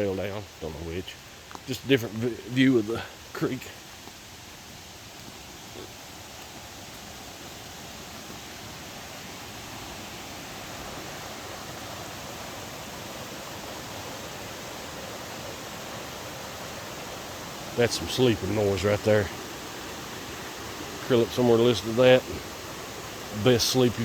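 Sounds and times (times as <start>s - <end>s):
creek water rushing: 0.0s - 24.0s.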